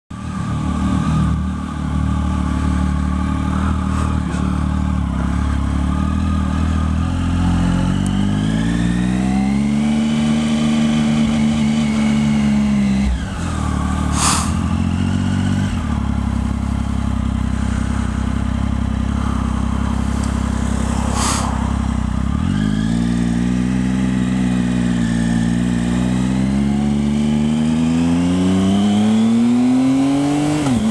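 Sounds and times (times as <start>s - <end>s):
motorcycle engine revving: 0.1s - 30.9s
brief sharp noises: 14.1s - 14.6s, 21.0s - 21.7s.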